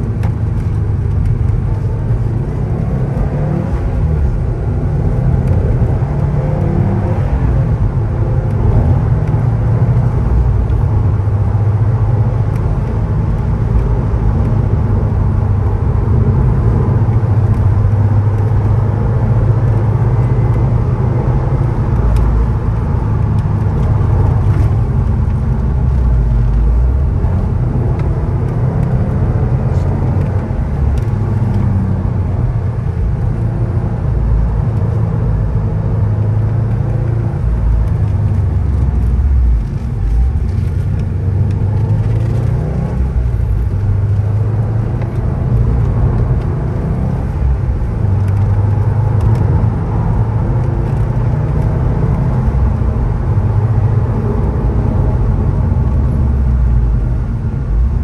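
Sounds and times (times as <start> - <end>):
car engine drone from inside cabin: 0.0 - 58.0.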